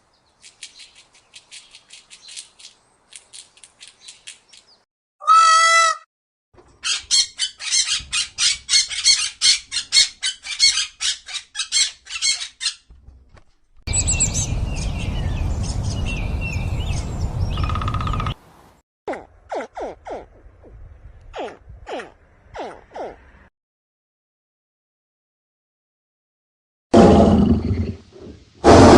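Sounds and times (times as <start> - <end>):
birds chirping: 0.0 - 4.8, 13.9 - 18.6
bird squawking: 6.8 - 12.8.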